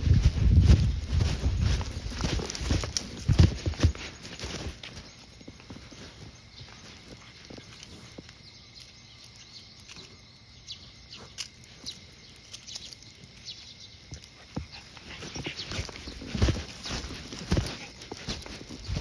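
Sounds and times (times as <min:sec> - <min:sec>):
footsteps on pavement: 0:00.0 - 0:08.4, 0:14.1 - 0:19.0.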